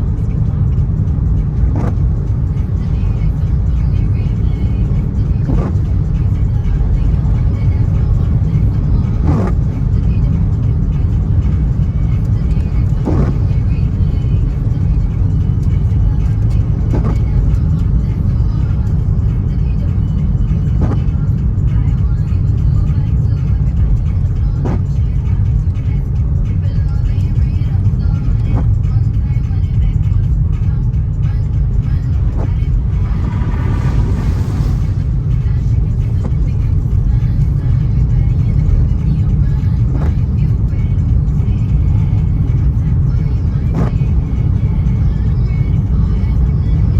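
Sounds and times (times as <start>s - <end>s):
car engine and tyres on wet road: 0.0s - 46.9s
light rain ticks: 10.8s - 19.5s
car driving in rain: 29.9s - 46.4s
brief swish: 32.2s - 35.2s.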